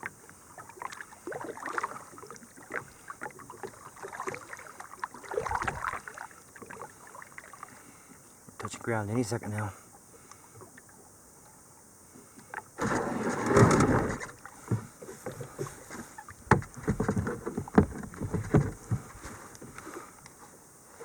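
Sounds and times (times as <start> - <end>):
kayak hull grinding onto shore: 5.4 - 6.1, 12.8 - 20.1
knocks and scrapes against hull: 12.8 - 19.9.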